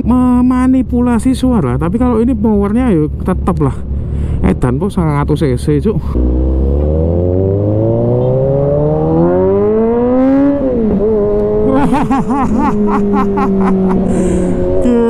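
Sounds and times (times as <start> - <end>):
motorcycle engine accelerating: 6.0 - 15.0.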